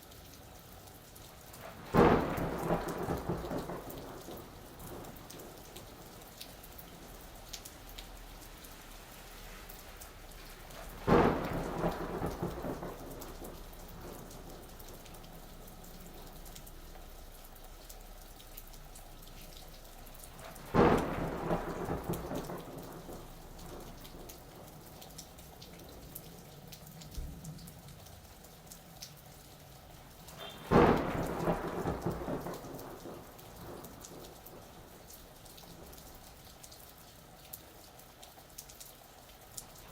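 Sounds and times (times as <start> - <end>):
steady rain falling: 0.0 - 39.9
thunder cracks rumbling: 1.6 - 7.2, 10.7 - 17.0, 20.3 - 25.0, 30.3 - 36.1.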